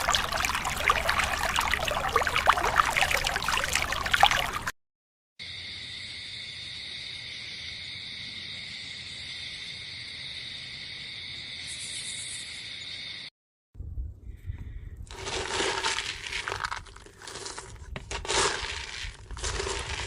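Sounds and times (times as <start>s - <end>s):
high-pitched insect chorus: 5.4s - 13.3s.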